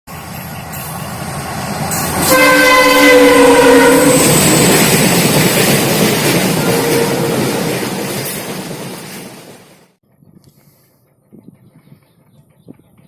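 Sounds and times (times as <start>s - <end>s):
multi-tone air horn: 2.2s - 4.4s.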